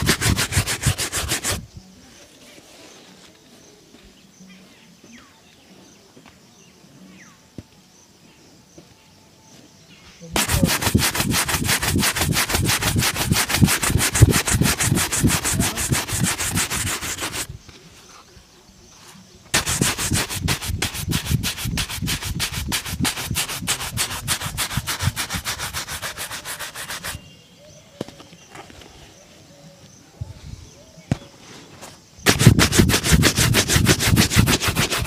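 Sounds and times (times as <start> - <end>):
shoe being buffed by hand: 0.0 - 1.6, 10.4 - 17.5, 19.6 - 27.2, 32.3 - 35.0.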